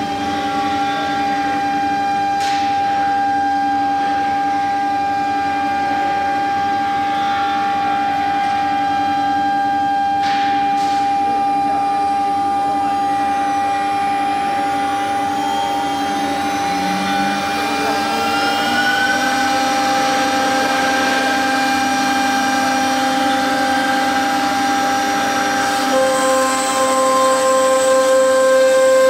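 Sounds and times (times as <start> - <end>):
cnc spindle high whine: 0.0 - 29.0
drive motors rising tones: 14.0 - 29.0
router cutting fibre board: 15.0 - 29.0.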